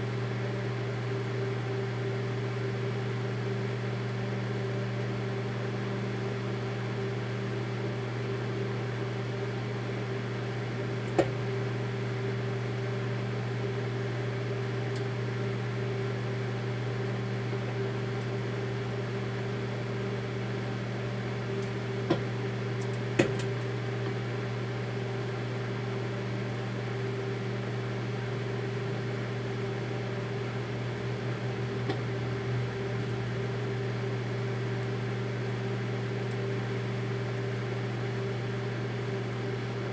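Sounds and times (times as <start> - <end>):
microwave oven humming: 0.0 - 39.9.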